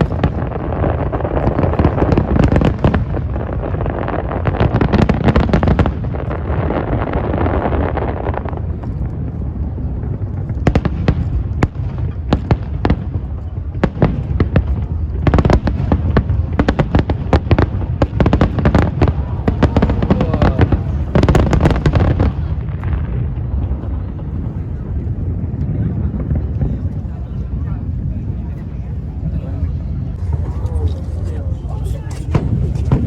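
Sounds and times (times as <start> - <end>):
fireworks cracks and bangs: 0.0 - 29.3, 30.0 - 33.0
low rumble: 15.8 - 33.0.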